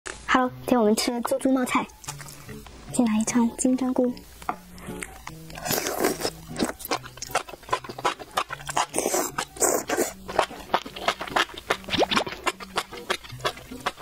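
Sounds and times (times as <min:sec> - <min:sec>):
wet chewing: 0:01.9 - 0:02.6, 0:04.8 - 0:14.0
person slurping food: 0:05.6 - 0:14.0.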